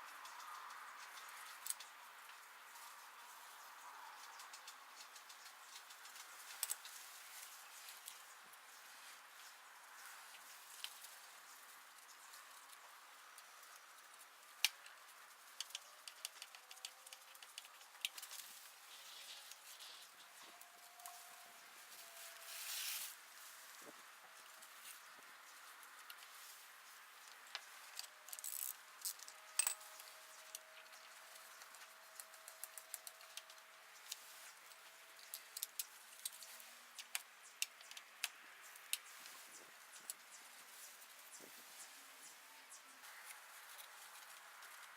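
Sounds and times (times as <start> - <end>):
light clicks and taps of hand tools: 15.6 - 18.5
soft hiss: 17.6 - 28.1
hand tools clicking and tapping: 27.3 - 30.7.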